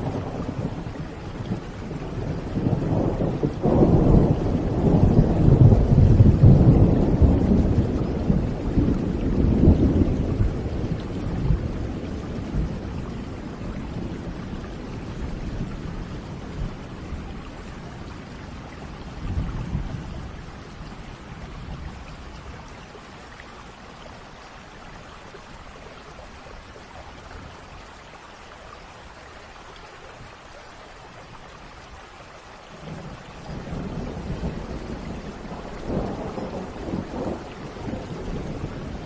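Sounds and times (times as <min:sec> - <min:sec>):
thunder rumbling: 0:00.0 - 0:22.7, 0:32.7 - 0:39.0
steady rain falling: 0:00.0 - 0:39.0.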